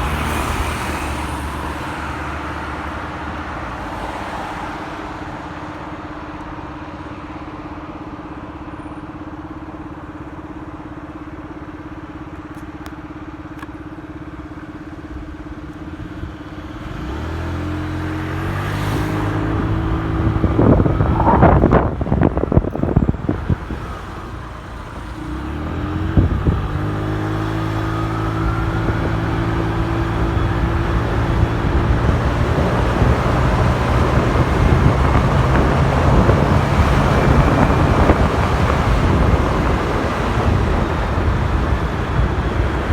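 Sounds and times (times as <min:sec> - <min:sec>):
motorcycle engine: 0:17.6 - 0:42.9
wind rushing on microphone: 0:18.4 - 0:42.9.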